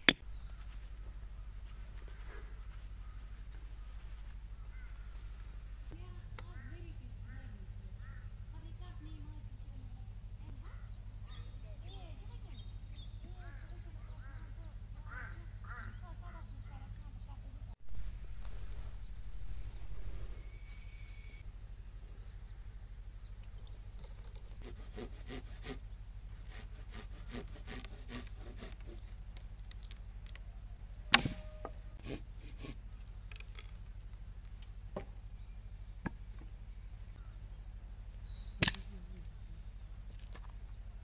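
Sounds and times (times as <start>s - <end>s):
dead branches cracking: 27.7s - 30.4s, 38.6s - 39.3s
branch snapping loudly: 38.6s - 39.0s.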